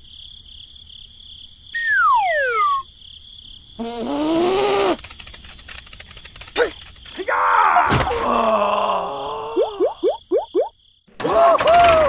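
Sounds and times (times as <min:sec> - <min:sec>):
falling whistle glide: 0:01.8 - 0:02.9
faint rapid ticking: 0:04.8 - 0:07.2.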